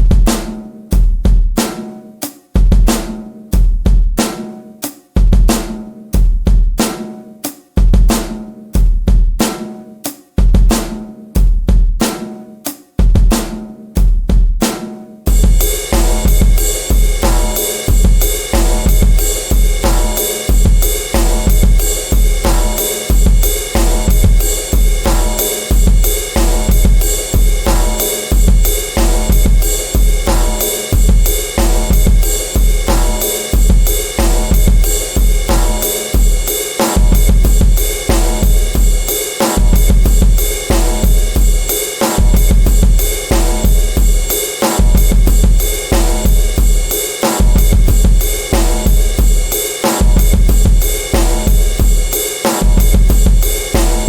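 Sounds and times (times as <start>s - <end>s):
drum kit beat: 0.0s - 54.0s
deep bass hits: 15.3s - 35.8s.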